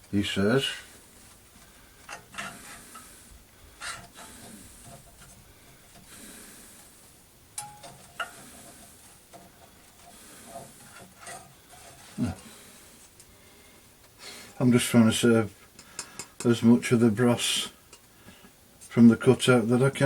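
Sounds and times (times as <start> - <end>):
background hiss: 0.0 - 20.0
light clicks and taps: 15.7 - 16.6.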